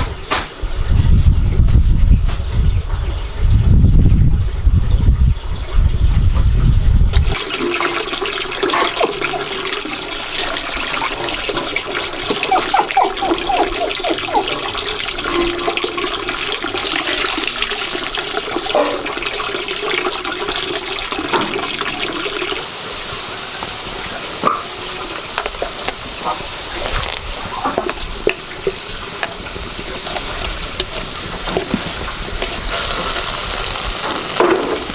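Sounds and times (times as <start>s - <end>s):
water running and splashing: 7.2s - 34.9s.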